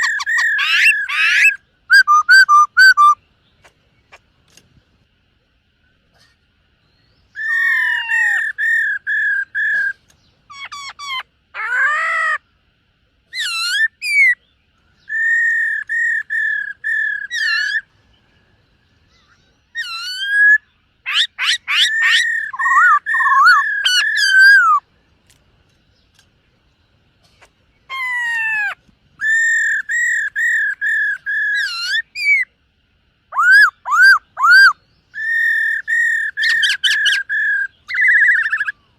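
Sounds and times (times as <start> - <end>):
bird singing whistled phrases: 0.0 - 3.2, 13.4 - 17.9, 19.1 - 24.8, 29.2 - 32.5, 33.3 - 38.8.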